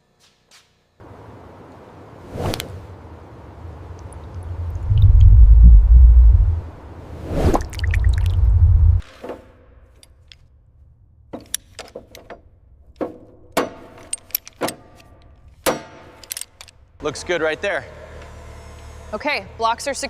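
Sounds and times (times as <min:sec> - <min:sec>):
low rumble: 0:03.3 - 0:09.0
metallic clinks and knocks: 0:13.6 - 0:16.8.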